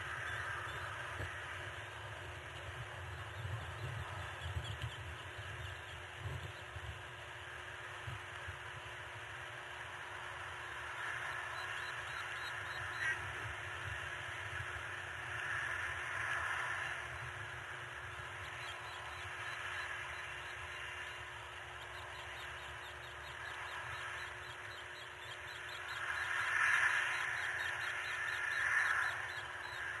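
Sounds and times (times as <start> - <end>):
harsh cawing bird calls: 21.8 - 30.0.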